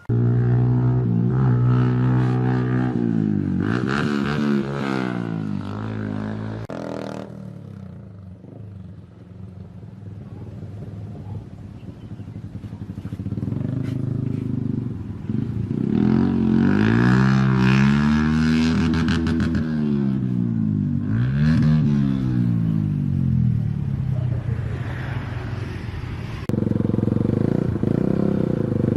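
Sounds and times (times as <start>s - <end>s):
motorcycle engine revving: 0.0s - 25.7s, 26.4s - 28.9s.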